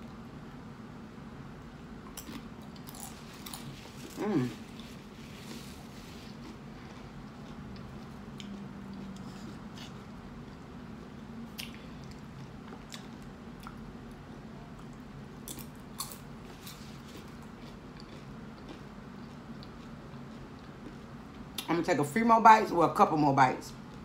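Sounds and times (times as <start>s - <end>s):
wet chewing sounds: 2.1s - 10.6s, 11.5s - 13.8s, 14.8s - 21.7s.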